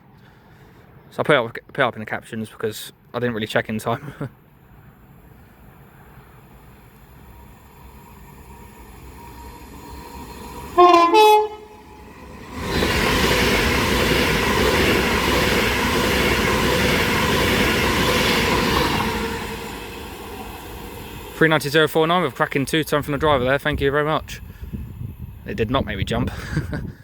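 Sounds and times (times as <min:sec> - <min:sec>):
electric train rushing past: 0:05.5 - 0:26.1
two-tone train horn: 0:10.6 - 0:12.3.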